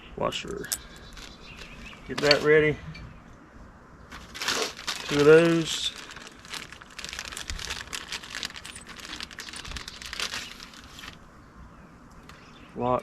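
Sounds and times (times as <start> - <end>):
plastic bag crinkling: 0.9 - 2.5, 4.1 - 11.2.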